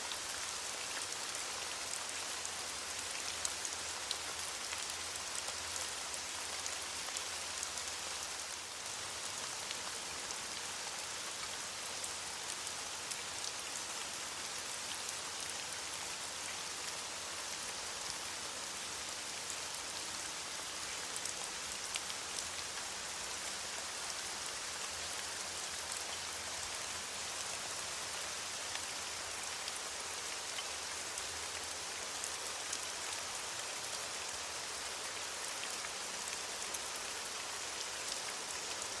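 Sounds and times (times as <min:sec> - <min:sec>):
rain falling on leaves: 0:00.0 - 0:39.0.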